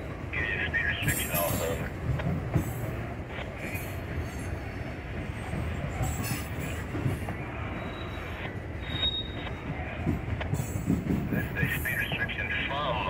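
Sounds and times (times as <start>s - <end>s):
freight train rumbling past: 0.0s - 13.0s
high wheel squeal: 7.7s - 9.6s.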